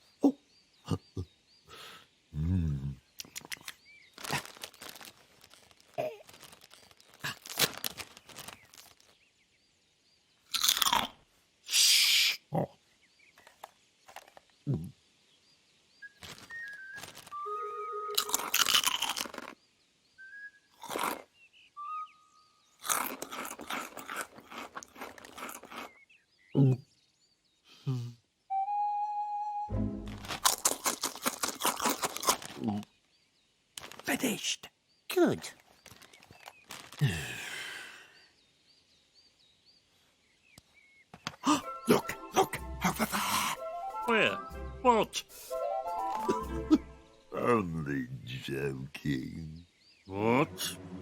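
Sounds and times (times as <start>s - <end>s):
crinkling and rustling: 3.2s - 9.2s, 13.3s - 14.6s, 16.1s - 17.5s, 30.0s - 32.9s, 33.8s - 34.2s, 35.5s - 37.4s
loud crunching chewing: 3.2s - 9.2s, 10.4s - 11.2s, 18.1s - 19.6s, 20.7s - 21.3s, 22.8s - 26.1s, 30.1s - 32.9s, 35.7s - 37.7s, 41.4s - 43.6s, 45.3s - 46.8s
faint bird twittering: 14.4s - 18.1s, 19.6s - 22.8s.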